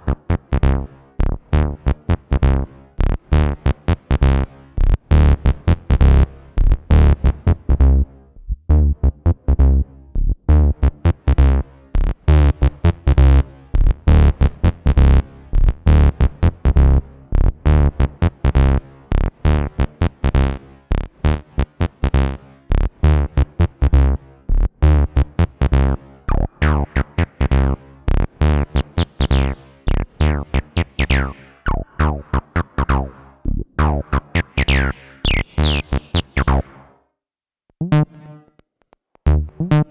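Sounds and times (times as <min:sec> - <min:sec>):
synthesizer acid bassline: 0:24.9 - 0:37.0.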